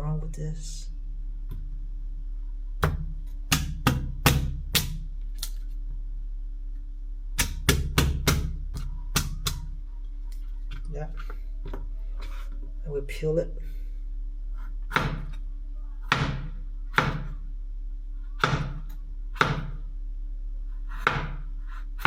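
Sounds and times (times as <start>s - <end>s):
knife chopping on cutting board: 2.8s - 5.0s, 14.9s - 15.4s, 16.1s - 17.3s, 18.4s - 19.8s, 20.9s - 22.0s.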